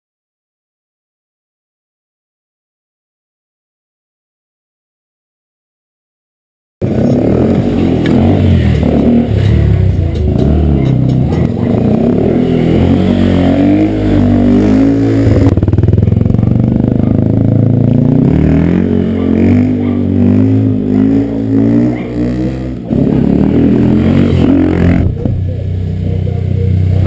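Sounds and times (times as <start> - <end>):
motorcycle engine running: 6.8 - 27.0.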